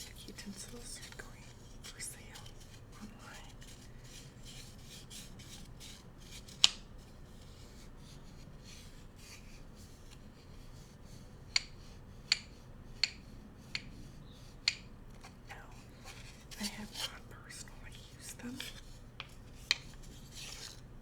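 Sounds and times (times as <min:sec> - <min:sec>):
bamboo utensils rubbing: 0:00.0 - 0:20.9
bamboo utensils clicking: 0:11.5 - 0:13.9, 0:14.6 - 0:15.3, 0:18.6 - 0:20.8.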